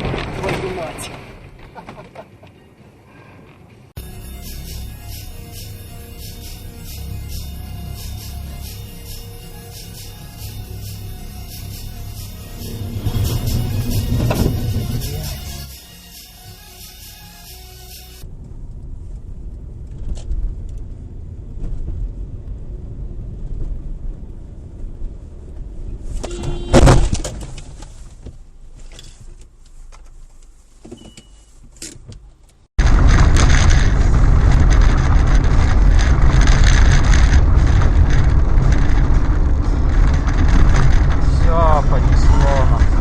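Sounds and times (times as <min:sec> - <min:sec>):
road rumble: 0:00.0 - 0:43.0
loud collision bang: 0:04.0 - 0:18.2, 0:26.3 - 0:27.3.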